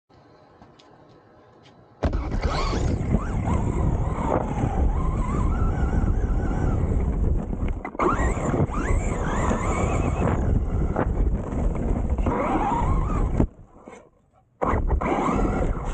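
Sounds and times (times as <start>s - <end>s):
electric motor whining: 2.0s - 13.8s, 14.6s - 15.9s
wind rumble on microphone: 2.0s - 13.8s.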